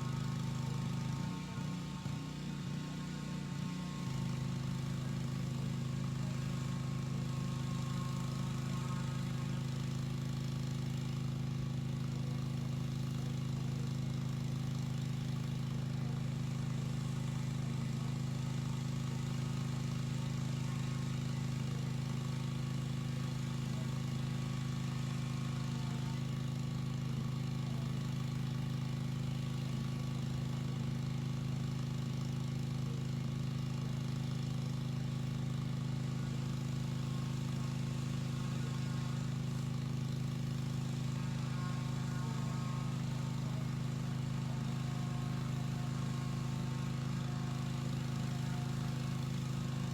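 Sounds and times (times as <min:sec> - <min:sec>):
pressure washer engine running: 0:00.0 - 0:49.9.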